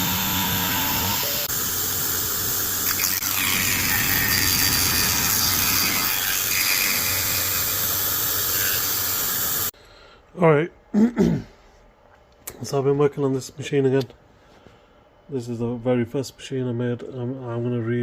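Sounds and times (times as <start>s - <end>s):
milling machine cutting metal: 0.0s - 1.5s, 2.8s - 9.7s.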